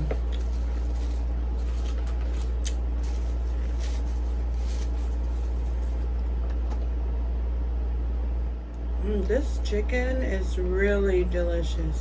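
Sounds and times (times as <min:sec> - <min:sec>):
chewing and crunching salad: 0:00.0 - 0:06.4
air conditioner hum: 0:00.0 - 0:12.0.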